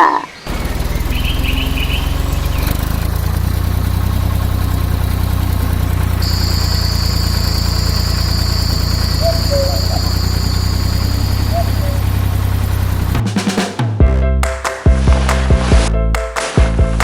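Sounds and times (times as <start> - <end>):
tractor engine rumbling: 0.5 - 13.6
steady high whine: 0.6 - 13.2.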